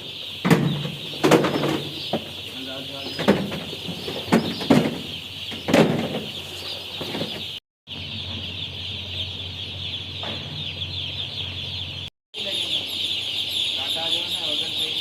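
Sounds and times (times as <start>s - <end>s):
chicks peeping: 0.0s - 15.0s
sharp knocks: 0.4s - 2.5s, 3.1s - 6.4s.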